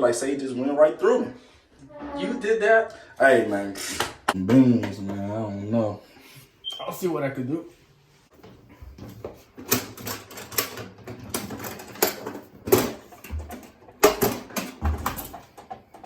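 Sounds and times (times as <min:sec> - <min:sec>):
irregular knocks and clatters: 0:08.4 - 0:16.0.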